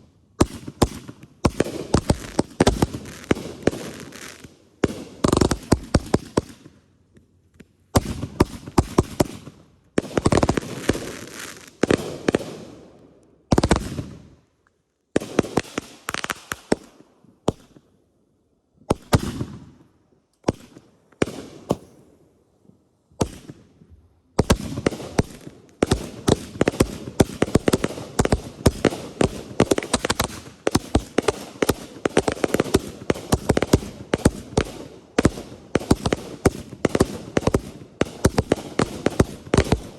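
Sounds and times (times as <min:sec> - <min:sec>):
fireworks bangs and crackling: 0:00.0 - 0:06.8, 0:07.9 - 0:14.3, 0:15.2 - 0:17.8, 0:18.9 - 0:19.8, 0:20.4 - 0:22.2, 0:23.2 - 0:39.9.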